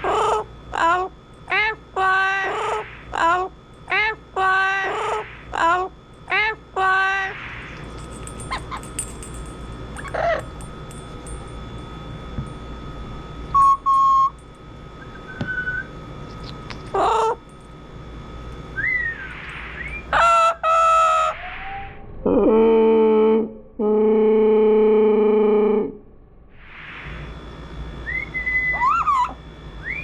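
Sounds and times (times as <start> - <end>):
parrot squawks and whistles: 15.0 - 15.9, 18.8 - 22.0, 28.0 - 30.0.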